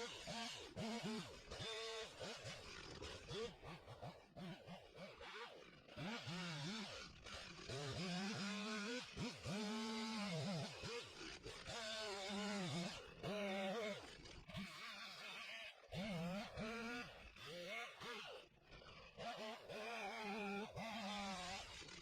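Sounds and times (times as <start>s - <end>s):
chainsaw revving: 0.0s - 22.0s.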